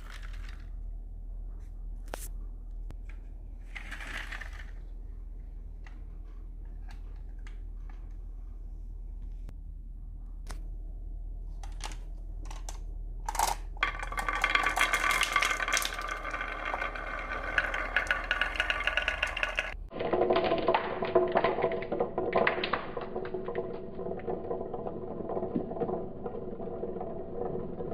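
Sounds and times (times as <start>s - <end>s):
marbles clattering down wooden tracks: 0.0s - 0.8s, 3.6s - 4.9s, 13.3s - 27.9s
low-pitched continuous rattle: 0.0s - 27.9s.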